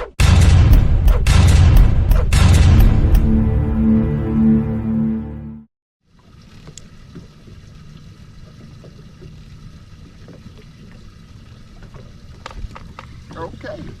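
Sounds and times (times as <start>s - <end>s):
open-water low rumble: 6.1s - 14.0s.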